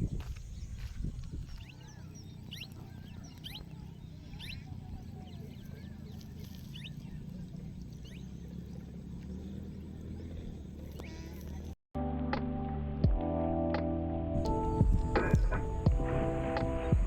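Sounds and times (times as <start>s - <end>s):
small birds chirping: 0.0s - 11.8s, 14.5s - 17.0s
steady low rumble: 14.3s - 17.0s.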